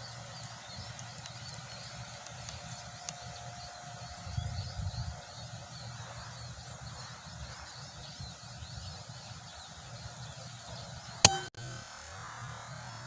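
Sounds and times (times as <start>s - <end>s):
wind buffeting microphone: 4.1s - 5.7s.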